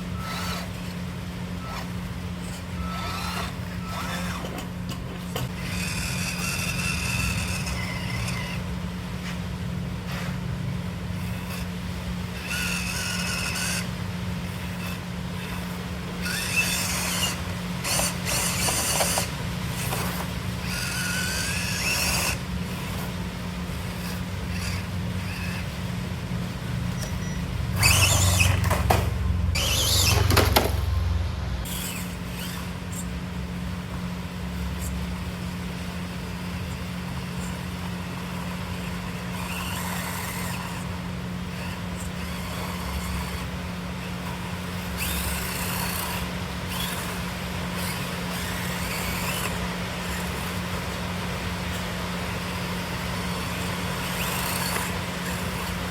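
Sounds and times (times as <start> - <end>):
scraping and rubbing: 0.0 - 10.4, 11.1 - 26.2, 26.9 - 31.0
small electric motors humming: 0.0 - 55.9.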